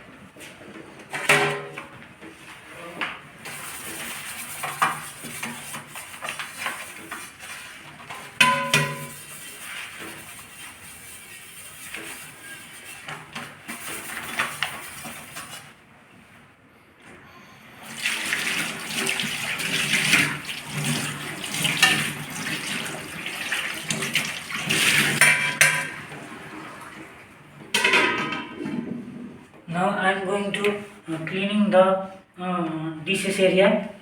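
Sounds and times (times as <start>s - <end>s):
pots clattering: 8.0s - 9.4s, 24.0s - 26.2s, 27.8s - 28.9s
tap water running into sink: 17.8s - 27.2s.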